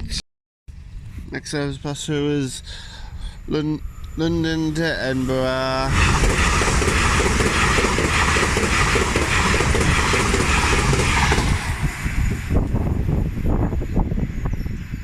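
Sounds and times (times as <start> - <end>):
train rushing past: 3.8 - 13.8.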